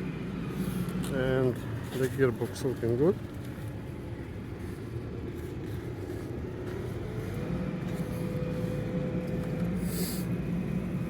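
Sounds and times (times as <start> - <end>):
machinery humming: 3.9 - 11.0.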